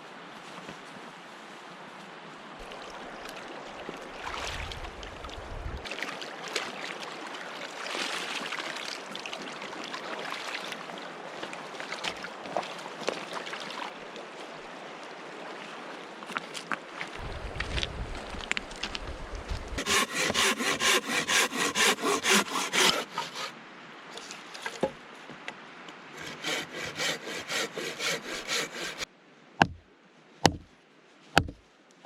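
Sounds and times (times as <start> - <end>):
river water flowing: 2.4 - 17.3, 18.0 - 29.8.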